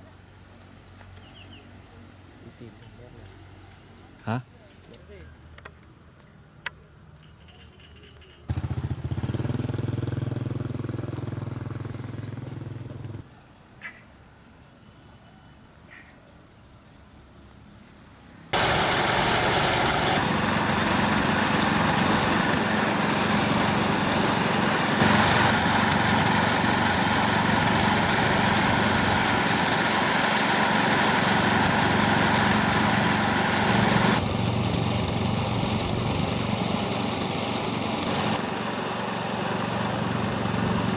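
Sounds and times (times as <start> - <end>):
small engine running: 8.5 - 13.2, 18.6 - 40.9.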